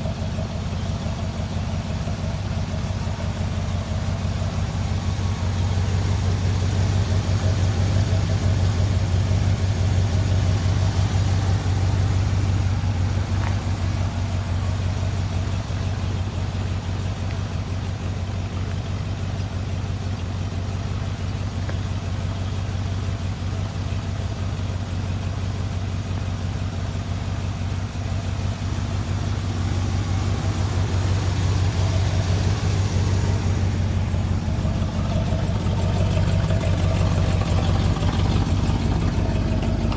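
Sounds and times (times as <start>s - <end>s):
truck engine humming: 0.0s - 39.9s.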